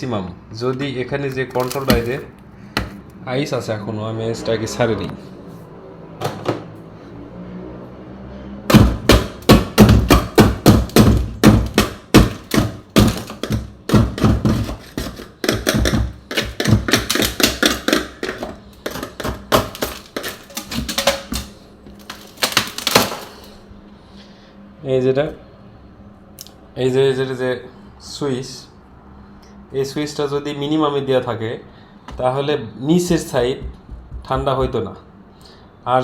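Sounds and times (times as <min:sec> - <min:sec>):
knocking ice in freezer: 0:01.6 - 0:03.0, 0:08.7 - 0:23.5, 0:33.0 - 0:34.8.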